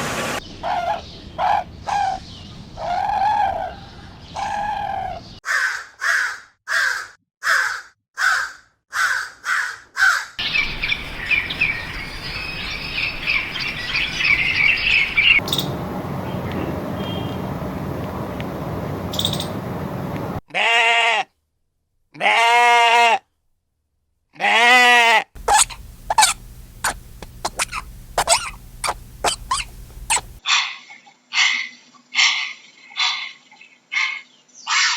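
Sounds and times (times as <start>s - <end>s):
short bird calls: 10.4s - 15.7s, 25.4s - 30.4s
dense bird chirping: 10.4s - 15.8s, 25.4s - 30.4s
drawn-out bleats: 25.4s - 30.4s.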